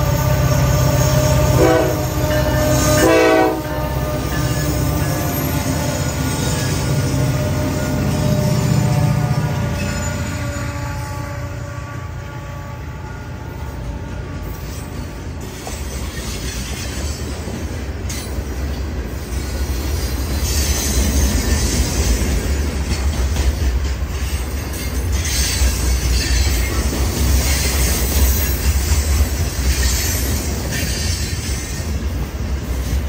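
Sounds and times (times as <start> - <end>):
diesel locomotive engine: 0.0 - 33.0
train wheels rumbling on rail: 0.0 - 33.0.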